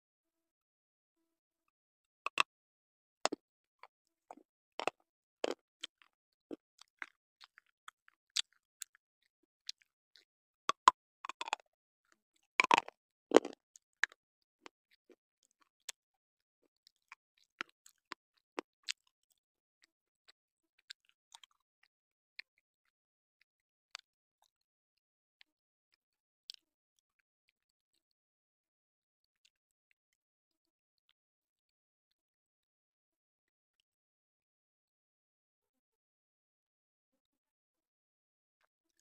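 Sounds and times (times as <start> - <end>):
person chewing crunchy pencil: 3.3 - 9.0, 9.7 - 11.6, 12.4 - 15.7.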